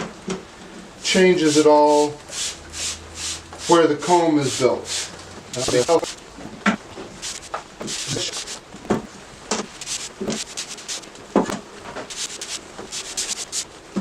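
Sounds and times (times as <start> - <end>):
spray bottle hissing sprays: 4.9 - 8.6, 9.5 - 11.3, 12.0 - 14.0.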